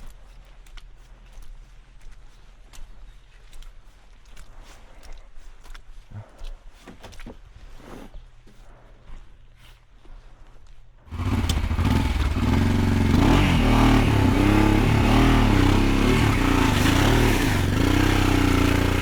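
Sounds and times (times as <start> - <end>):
motorcycle engine revving: 11.1 - 19.0.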